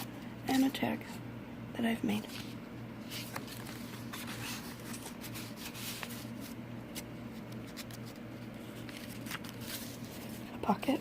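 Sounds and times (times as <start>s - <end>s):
low steady hum: 0.0s - 11.0s
paper pages rustling: 2.2s - 11.0s.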